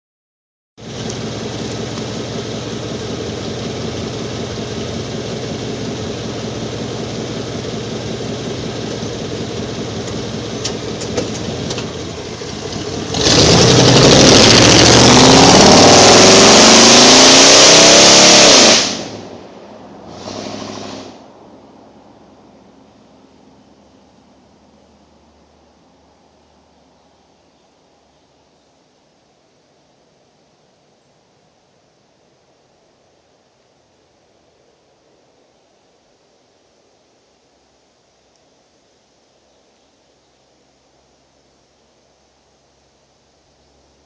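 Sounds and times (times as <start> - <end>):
engine idling and revving: 0.8 - 21.3.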